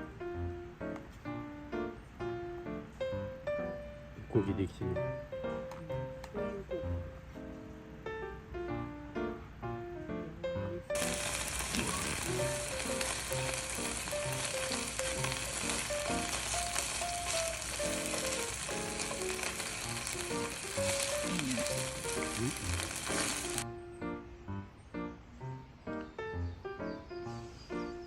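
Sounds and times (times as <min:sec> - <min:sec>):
piano music: 0:00.0 - 0:28.0
food sizzling in a pan: 0:11.0 - 0:23.6.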